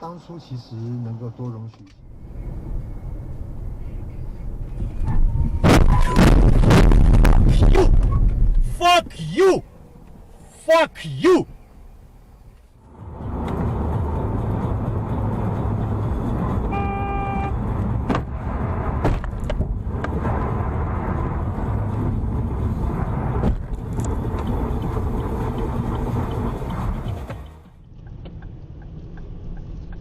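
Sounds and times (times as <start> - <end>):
traffic noise: 0.0 - 30.0
car horn honking: 16.6 - 17.6.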